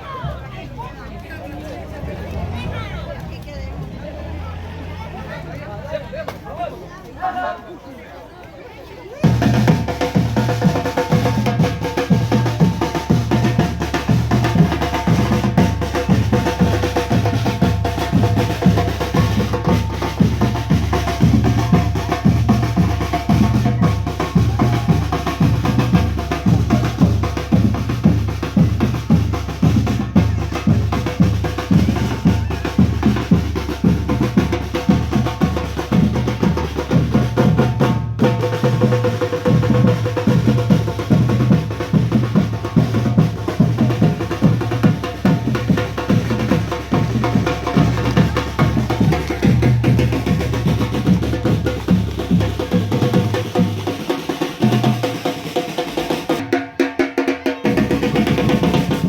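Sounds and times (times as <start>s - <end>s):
bass drum beating: 9.2s - 55.2s
marching band playing: 9.2s - 59.0s
snare drums beating: 9.2s - 59.0s.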